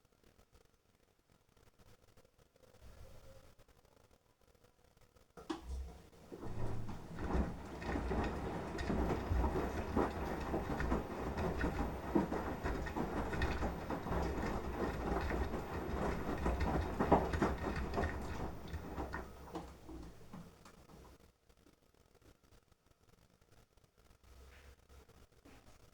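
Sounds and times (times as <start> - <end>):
washing machine drum tumbling: 5.5 - 21.1.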